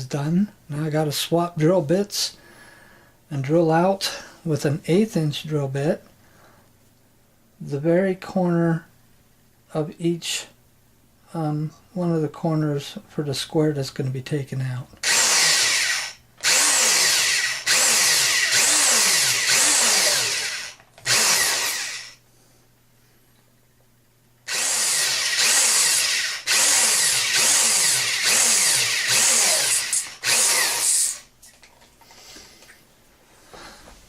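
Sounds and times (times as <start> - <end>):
power drill boring into wood: 15.0 - 22.2, 24.5 - 31.3.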